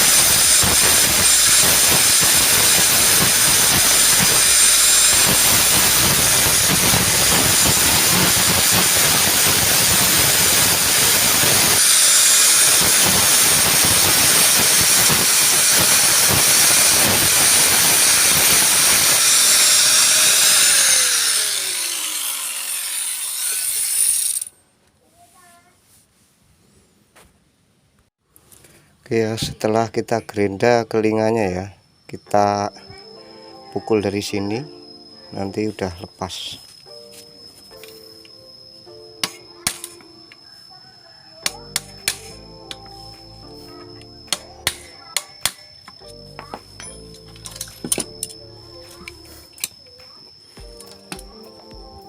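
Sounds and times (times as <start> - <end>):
angle grinder grinding metal: 0.0 - 24.5, 41.4 - 46.1.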